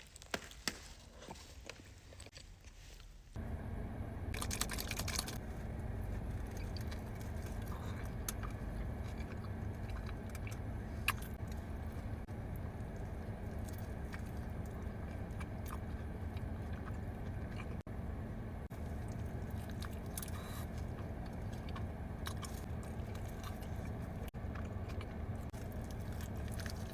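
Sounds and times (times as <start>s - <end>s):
steady low rumble: 3.3s - 26.9s
person chewing: 6.0s - 17.8s, 18.8s - 26.9s.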